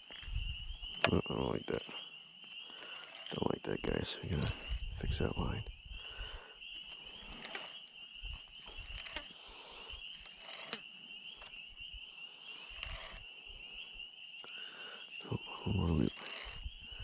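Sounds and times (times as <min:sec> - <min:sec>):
insect chirring: 0:00.0 - 0:17.0
fishing reel clicks and line rustles: 0:02.8 - 0:03.4, 0:07.2 - 0:07.8, 0:08.7 - 0:09.4, 0:10.1 - 0:11.6, 0:12.7 - 0:13.3, 0:16.1 - 0:16.6.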